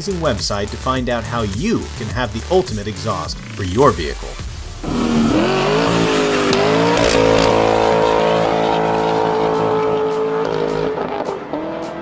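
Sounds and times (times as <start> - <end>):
car engine revving: 4.4 - 12.0.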